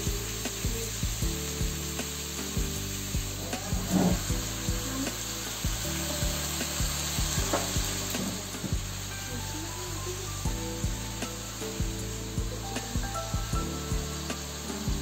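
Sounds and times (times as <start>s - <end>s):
background music with light beat: 0.0s - 15.0s
green beans sizzling in a wok: 0.0s - 15.0s.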